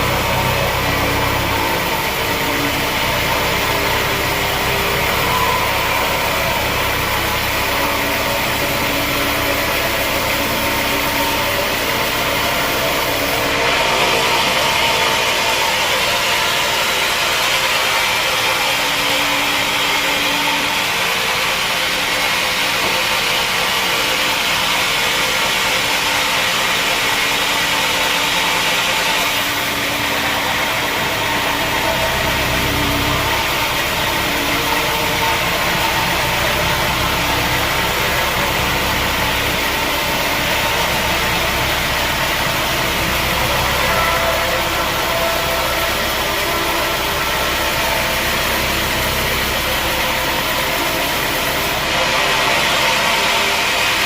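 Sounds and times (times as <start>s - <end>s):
sawmill machinery drone: 0.0s - 54.0s.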